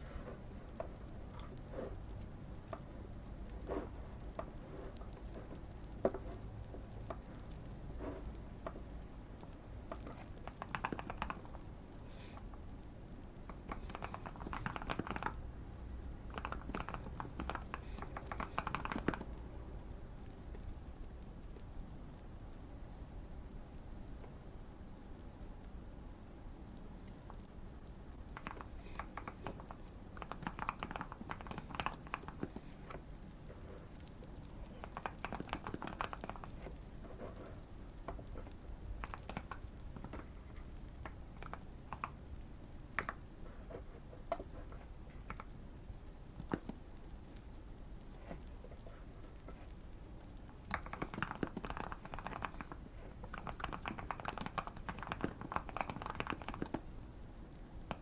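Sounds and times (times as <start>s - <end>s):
faint fireplace crackling: 0.0s - 58.0s
mechanical keyboard typing: 8.6s - 11.6s, 13.5s - 15.4s, 16.2s - 19.3s, 28.3s - 33.1s, 34.0s - 42.3s, 50.3s - 56.9s.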